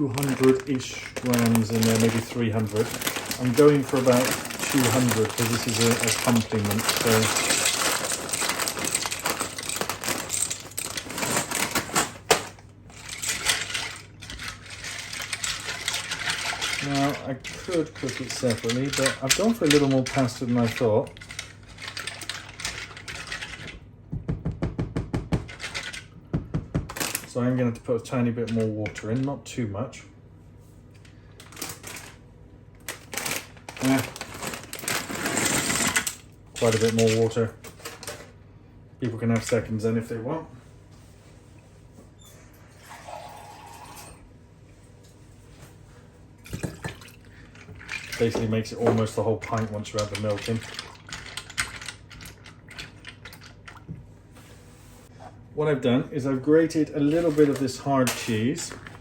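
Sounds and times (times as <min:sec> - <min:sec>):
dry pasta clattering into pan: 0:00.0 - 0:20.8.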